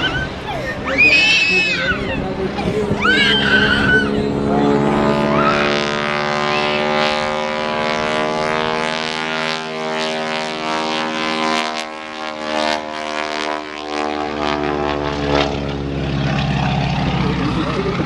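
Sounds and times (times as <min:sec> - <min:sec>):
wind buffeting microphone: 0:00.0 - 0:09.5
airplane engine droning: 0:00.0 - 0:18.0.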